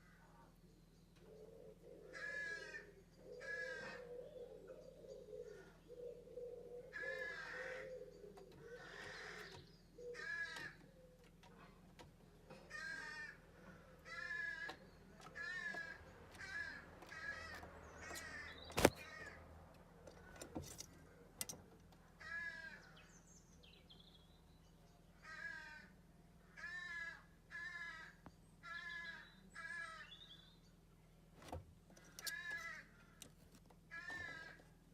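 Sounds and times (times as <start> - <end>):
owl raspy calls: 1.3 - 11.2.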